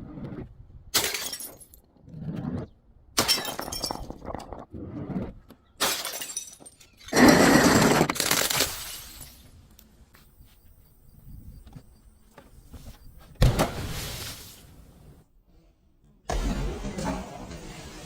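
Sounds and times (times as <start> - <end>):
glass bottles breaking: 1.0 - 1.8, 3.2 - 4.4, 5.8 - 9.5
glass shards crunching: 5.8 - 9.6.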